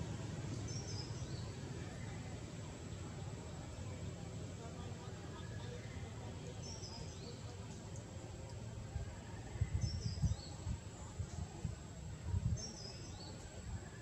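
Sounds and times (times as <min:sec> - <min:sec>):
outdoor background noise: 0:00.0 - 0:14.0
small bird singing: 0:00.5 - 0:02.4, 0:05.6 - 0:08.2, 0:09.6 - 0:11.1, 0:12.5 - 0:14.0.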